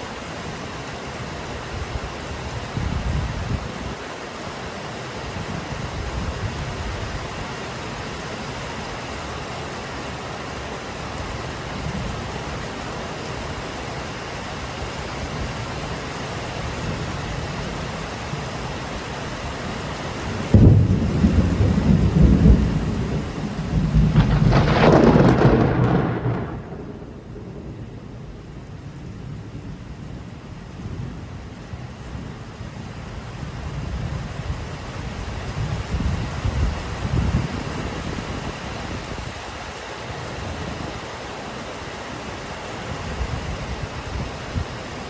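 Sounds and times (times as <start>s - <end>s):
steady rain: 0.0s - 45.0s
rumbling thunderclap: 20.4s - 29.9s.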